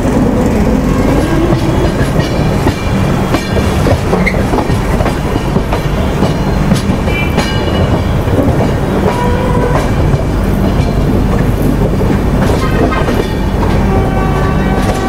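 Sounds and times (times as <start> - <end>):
train rumbling over track joints: 0.0 - 15.0.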